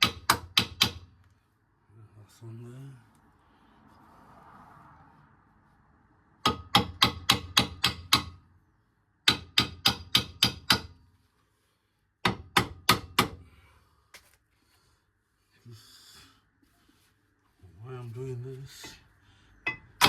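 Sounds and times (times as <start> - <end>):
hammer striking metal: 19.6 - 20.0.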